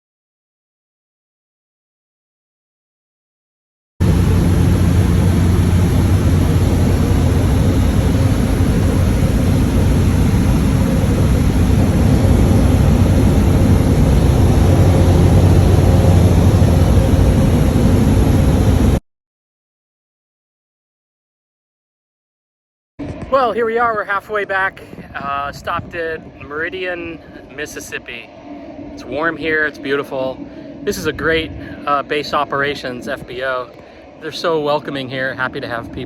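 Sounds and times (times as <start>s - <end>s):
turboprop engine drone: 4.0s - 19.0s, 23.0s - 36.0s.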